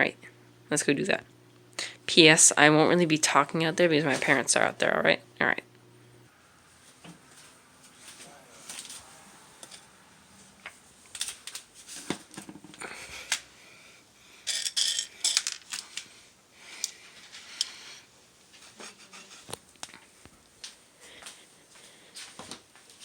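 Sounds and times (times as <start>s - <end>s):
objects rustling and clinking: 14.4s - 16.1s.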